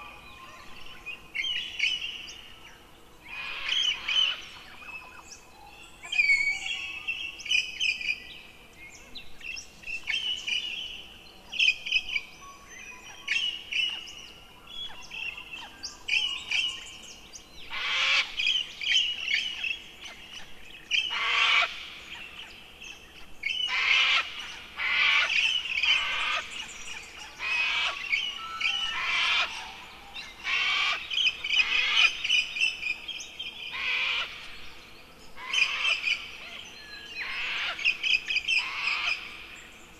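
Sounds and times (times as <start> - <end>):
harsh bird calls: 20.9 - 21.8, 23.5 - 32.8, 33.6 - 39.5.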